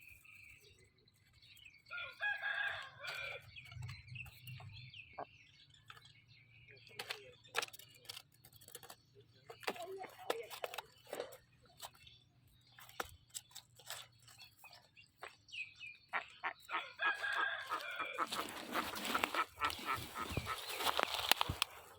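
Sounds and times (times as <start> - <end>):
rooster crowing: 1.9 - 3.4, 16.8 - 18.5
small clicks and knocks: 5.8 - 15.3, 18.3 - 21.8
chickens clucking: 16.1 - 21.9.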